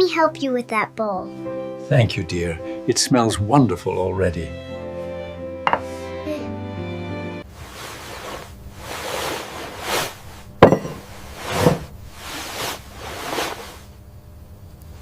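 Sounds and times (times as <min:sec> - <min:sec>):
swishing scraping sounds: 0:11.0 - 0:13.9.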